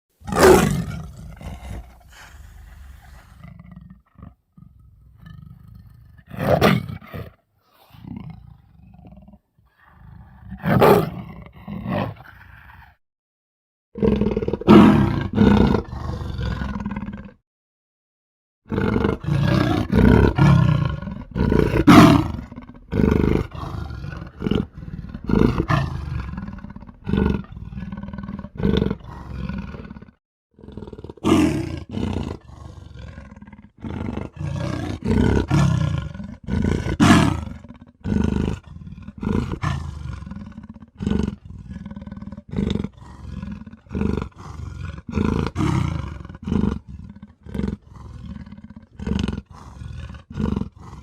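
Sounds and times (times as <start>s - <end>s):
big cat roars and growls: 0.1s - 13.0s, 14.0s - 17.4s, 18.7s - 51.0s.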